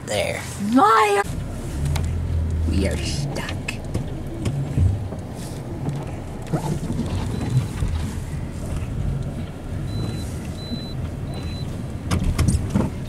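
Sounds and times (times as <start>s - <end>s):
car engine rumble from cabin: 0.0s - 13.0s
warning chime beeping: 9.9s - 11.7s.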